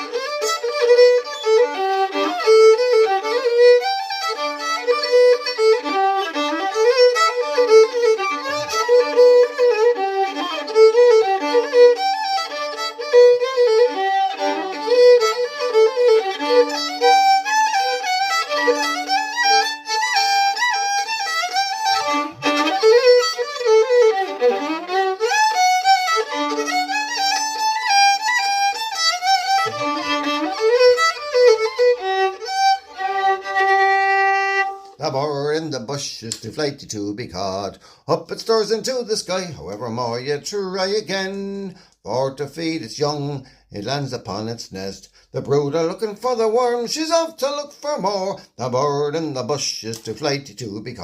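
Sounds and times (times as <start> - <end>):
fiddle playing: 0.0 - 35.9, 45.5 - 49.1.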